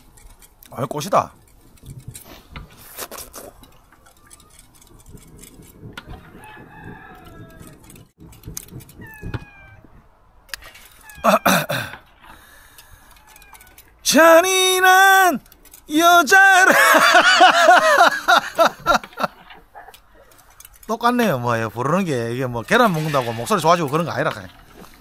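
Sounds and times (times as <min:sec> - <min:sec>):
rooster crowing: 0:06.0 - 0:08.0, 0:13.0 - 0:13.8
chickens clucking: 0:17.9 - 0:20.6.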